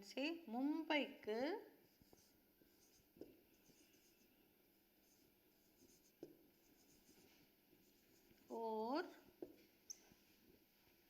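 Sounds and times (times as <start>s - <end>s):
handwriting scratching: 2.0s - 4.4s, 5.0s - 8.4s.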